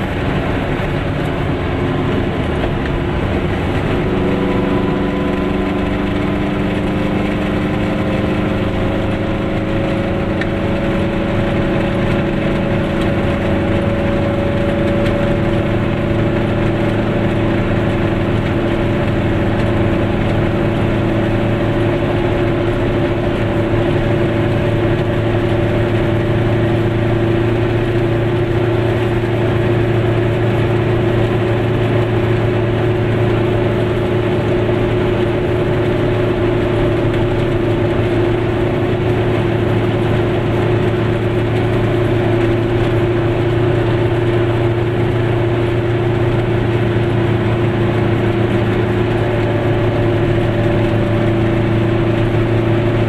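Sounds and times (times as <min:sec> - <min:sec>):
two-stroke car engine hum: 0:00.0 - 0:53.0
tyre noise on wet road: 0:00.0 - 0:53.0.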